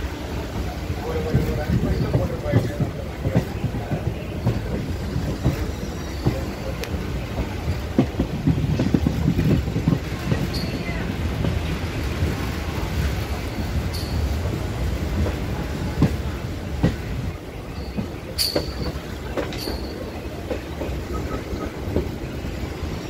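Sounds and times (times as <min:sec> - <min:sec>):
train wheels rumbling on rail: 0:00.0 - 0:23.0
clacks over rail joints: 0:00.6 - 0:23.0
wheel squeals: 0:04.4 - 0:06.8, 0:17.7 - 0:20.2.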